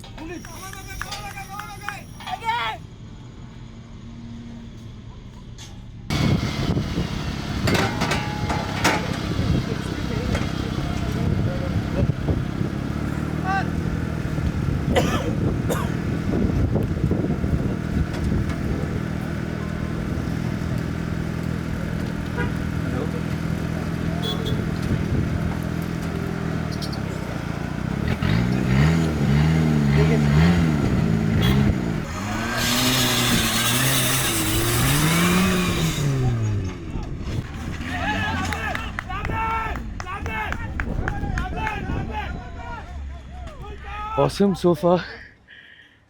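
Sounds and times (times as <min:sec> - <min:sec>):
engine revving: 0:06.1 - 0:40.1.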